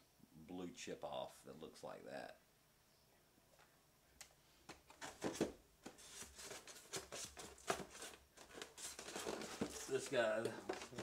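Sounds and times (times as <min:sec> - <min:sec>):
plastic and packaging clicks and scrapes: 0:04.7 - 0:11.0.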